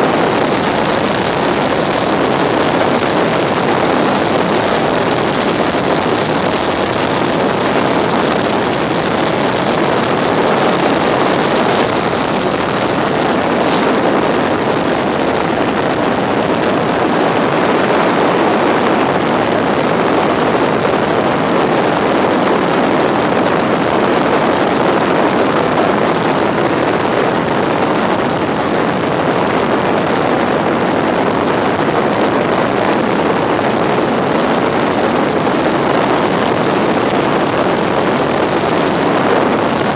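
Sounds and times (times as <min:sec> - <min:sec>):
helicopter engine and rotor noise: 0:00.0 - 0:30.5.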